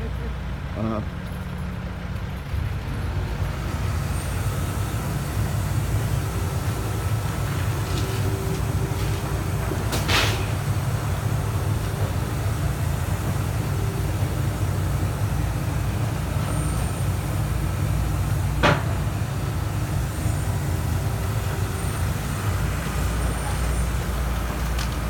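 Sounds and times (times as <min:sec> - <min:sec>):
diesel engine running: 0:00.0 - 0:25.0
sharp crack: 0:09.8 - 0:10.6.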